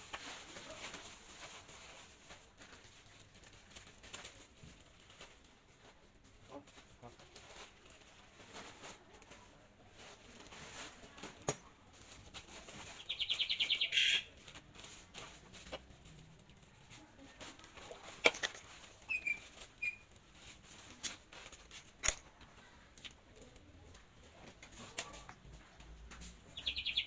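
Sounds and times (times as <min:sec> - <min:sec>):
small bird chirping: 0:13.0 - 0:14.3, 0:19.1 - 0:20.0, 0:26.5 - 0:27.0.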